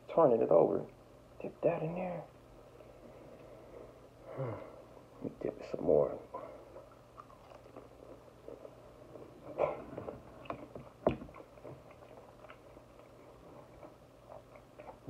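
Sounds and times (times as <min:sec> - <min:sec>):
person chewing: 0:06.6 - 0:15.0.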